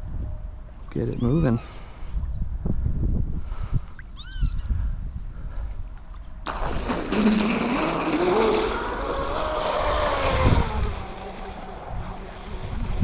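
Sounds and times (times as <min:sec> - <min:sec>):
water rushing noise: 0:06.5 - 0:13.0
rc boat motor whining: 0:07.1 - 0:13.0.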